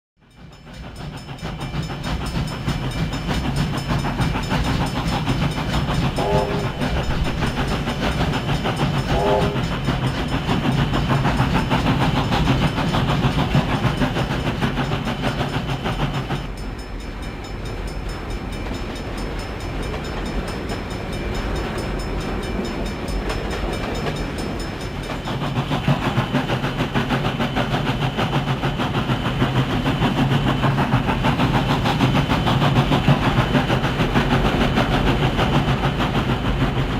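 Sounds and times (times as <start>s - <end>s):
train running with heavy drone: 0.2s - 36.9s
short pitched train toots: 6.0s - 10.9s.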